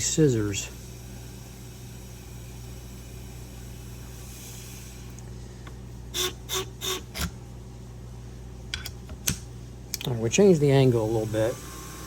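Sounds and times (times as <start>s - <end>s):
electric motor humming: 10.9s - 12.0s.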